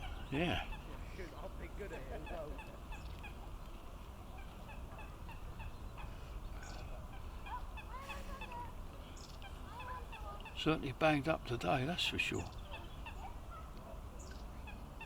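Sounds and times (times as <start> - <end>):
birds chirping: 0.0 - 15.0
lower gliding bird calls: 12.2 - 15.0.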